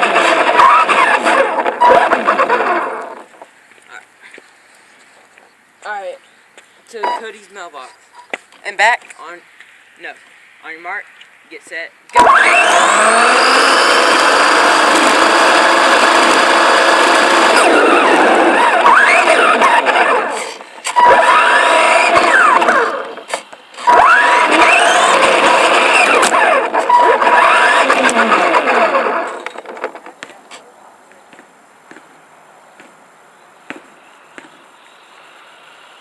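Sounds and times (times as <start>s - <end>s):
rc car motor whining: 0.0s - 3.4s, 12.1s - 30.0s.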